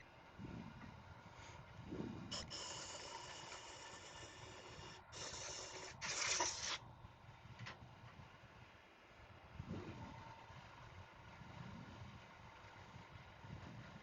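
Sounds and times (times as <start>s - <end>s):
lathe humming: 2.3s - 6.7s
gouge cutting wood: 2.3s - 6.8s.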